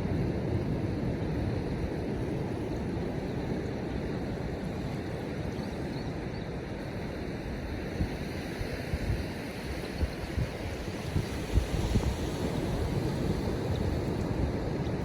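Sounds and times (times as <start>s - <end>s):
surf washing on beach: 0.0s - 15.0s
wind: 0.0s - 15.0s
wind thumps on microphone: 9.9s - 15.0s.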